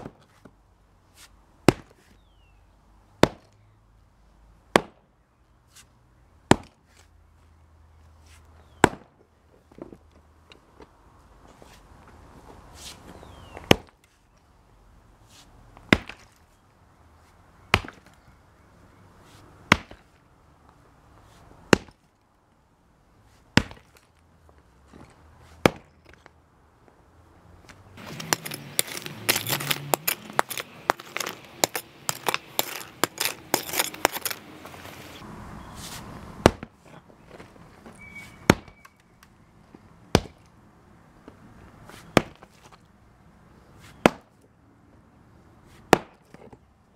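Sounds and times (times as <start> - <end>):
sledgehammer striking concrete: 3.2 - 3.5, 4.7 - 5.0, 23.6 - 24.0, 25.6 - 25.9, 28.0 - 34.6, 36.4 - 36.7, 45.9 - 46.2
broken concrete rattling: 28.0 - 34.8.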